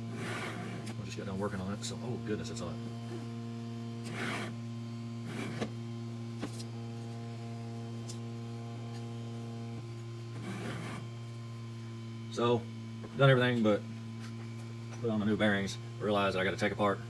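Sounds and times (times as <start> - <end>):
electrical mains hum: 0.0 - 17.0
rag wiping metal rods: 10.4 - 11.0.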